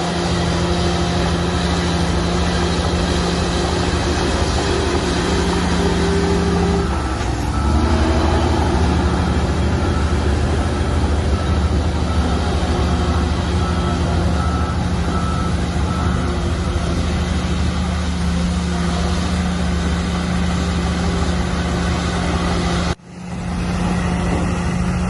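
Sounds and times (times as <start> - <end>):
bulldozer diesel engine: 0.0 - 25.0
reversing alarm beeping: 0.2 - 17.4.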